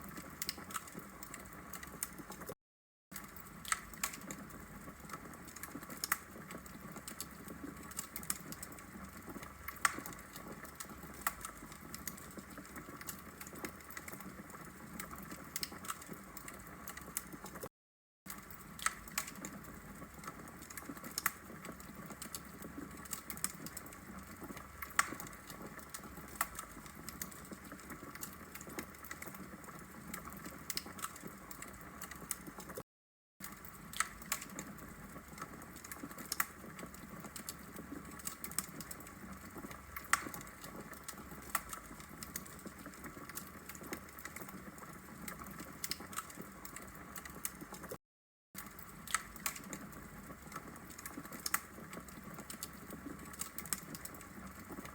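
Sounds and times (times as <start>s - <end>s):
wood fire crackling and popping: 0.0s - 17.7s, 18.3s - 32.8s, 33.4s - 48.0s, 48.6s - 54.9s.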